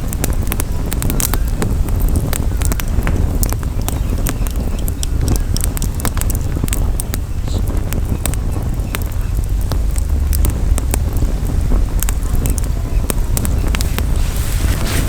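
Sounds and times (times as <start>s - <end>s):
campfire crackling and popping: 0.0s - 15.0s
wind on microphone: 0.0s - 15.0s.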